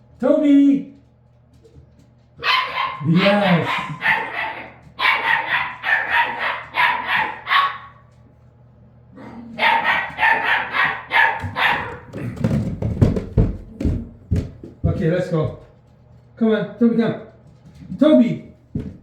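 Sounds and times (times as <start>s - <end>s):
dog barking: 2.4s - 8.1s, 9.2s - 12.4s
low thumps and knocks: 11.4s - 15.7s, 18.7s - 19.0s.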